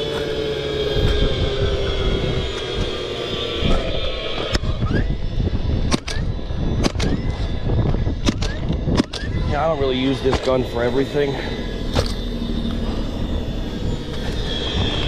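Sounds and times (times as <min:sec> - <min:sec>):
steady falling drone: 0:00.0 - 0:15.0
nail gun firing: 0:06.8 - 0:07.2, 0:08.2 - 0:09.3.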